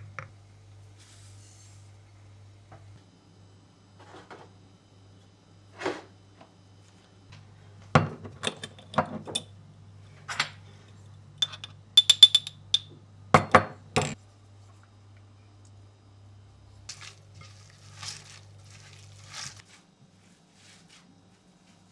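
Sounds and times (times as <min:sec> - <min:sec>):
dishes and glasses clinking: 0:11.4 - 0:14.2.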